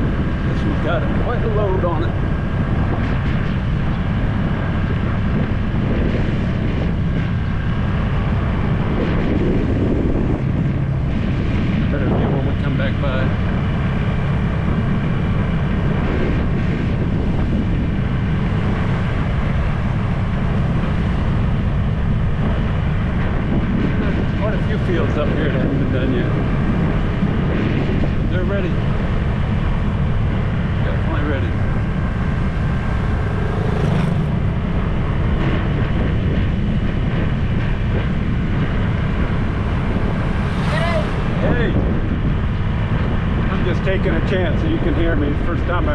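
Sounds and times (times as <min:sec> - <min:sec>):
road noise: 0:00.0 - 0:45.9
wind buffeting microphone: 0:00.0 - 0:45.9
scooter engine: 0:28.5 - 0:43.2.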